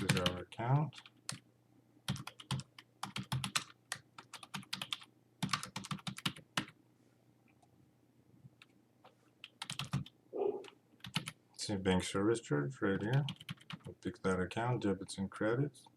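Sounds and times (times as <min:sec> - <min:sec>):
typing on computer keyboard: 0:00.0 - 0:01.4, 0:02.1 - 0:06.8, 0:09.4 - 0:10.1, 0:11.0 - 0:11.4, 0:13.1 - 0:13.9.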